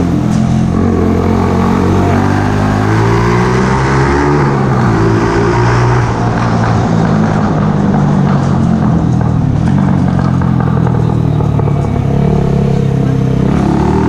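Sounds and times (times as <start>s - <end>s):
motorcycle engine running: 6.0s - 14.0s.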